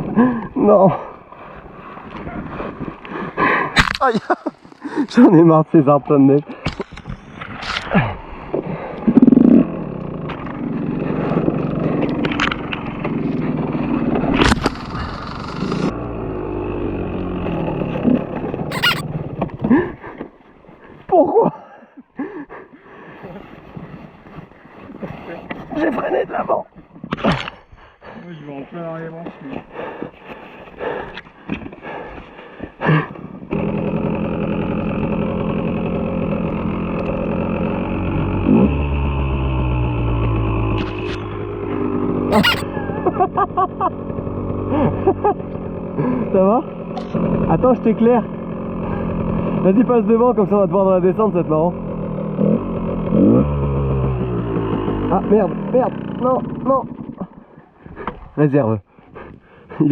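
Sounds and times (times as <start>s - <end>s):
two-stroke motorcycle engine: 8.8s - 19.8s, 33.2s - 57.6s
brief sharp sounds: 18.7s - 19.0s, 42.3s - 42.6s
motorcycle engine idling: 42.4s - 53.2s.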